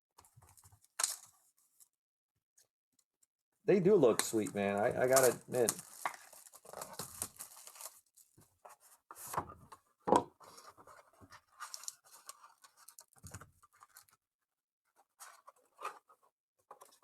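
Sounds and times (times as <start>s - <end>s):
plastic sleeves rustling: 3.7s - 9.4s, 10.4s - 14.2s.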